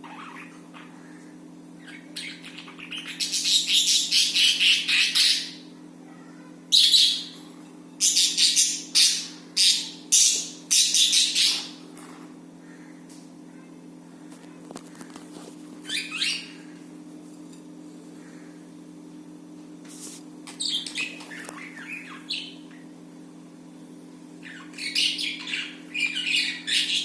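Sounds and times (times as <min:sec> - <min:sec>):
budgies chirping and squawking: 0:00.0 - 0:01.2, 0:01.8 - 0:05.6, 0:08.0 - 0:11.8, 0:20.6 - 0:22.7, 0:24.4 - 0:27.0
steady low hum: 0:00.0 - 0:27.0.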